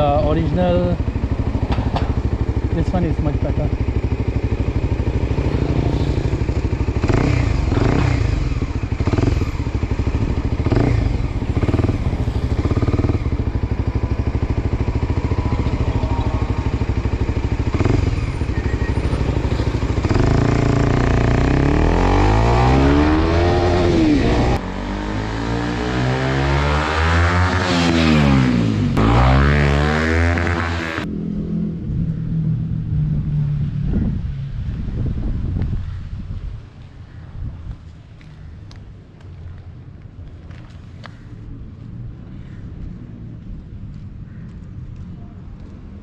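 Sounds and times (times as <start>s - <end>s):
motorcycle engine revving: 0.0s - 34.1s.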